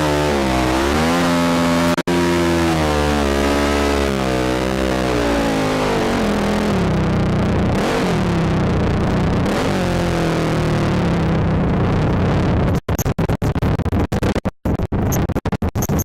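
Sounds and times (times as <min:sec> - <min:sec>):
atv engine revving: 0:00.0 - 0:11.8.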